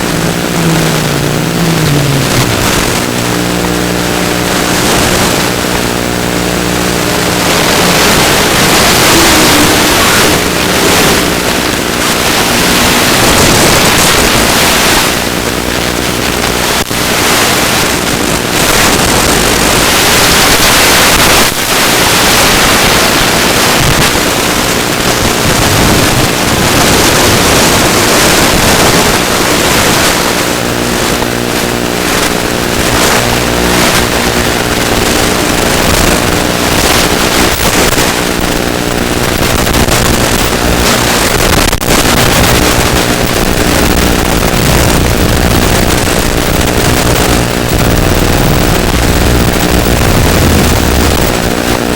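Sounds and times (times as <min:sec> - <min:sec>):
wind rushing over microphone: 0:00.0 - 0:51.9.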